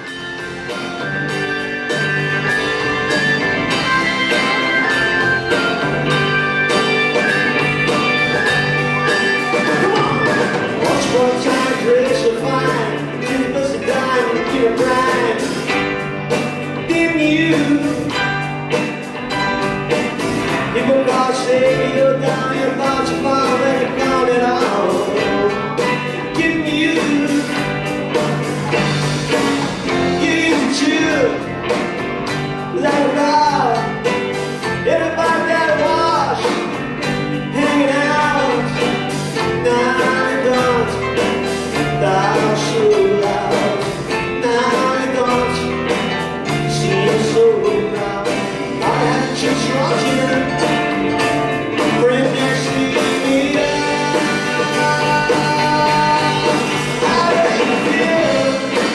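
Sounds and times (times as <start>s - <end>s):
lead guitar line bending in pitch: 0.0s - 11.0s
rock band playing live: 0.0s - 58.9s.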